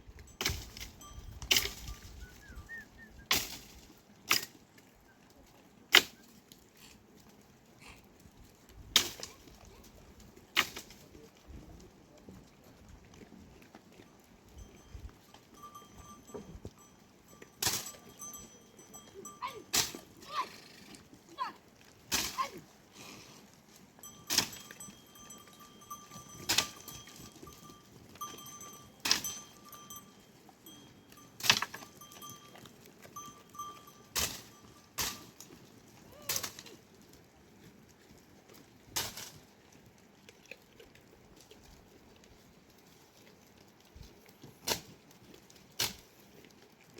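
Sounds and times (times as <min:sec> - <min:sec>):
livestock bell ringing: 0:00.0 - 0:02.8, 0:13.6 - 0:21.0, 0:23.7 - 0:36.3.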